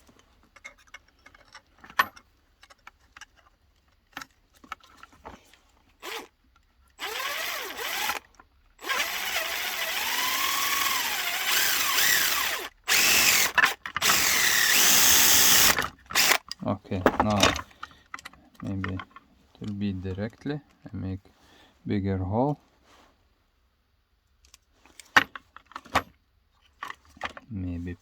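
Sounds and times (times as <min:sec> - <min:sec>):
electric drill running: 0:07.0 - 0:08.2, 0:08.8 - 0:16.4.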